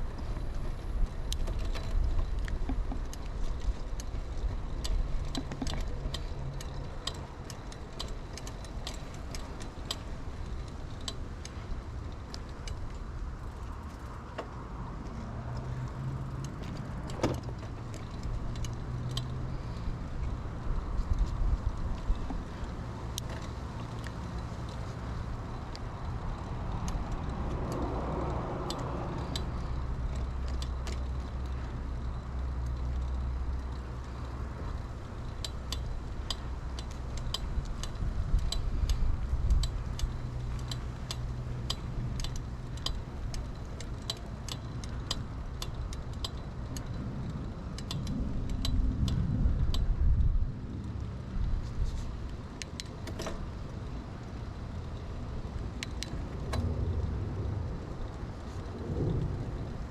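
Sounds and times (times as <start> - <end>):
bicycle tyre and road noise: 0.0 - 59.9
bike clicks and rattles: 0.0 - 59.9
low rumble: 46.6 - 52.5, 55.3 - 59.9.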